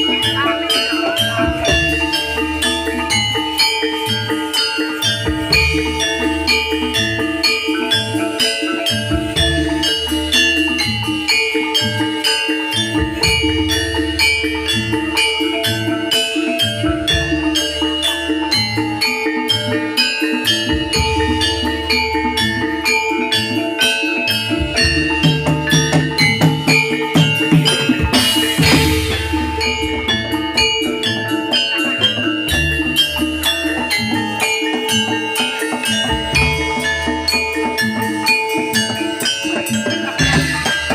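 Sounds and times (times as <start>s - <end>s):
metallophones ringing rhythm: 0.0s - 40.9s
low drum beats: 24.5s - 34.4s.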